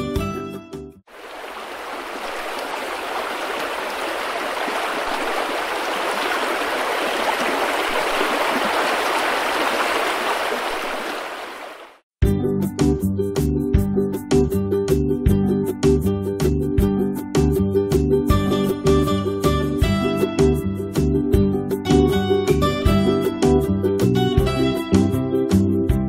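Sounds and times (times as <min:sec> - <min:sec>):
stream rushing over rocks: 0:01.1 - 0:12.0.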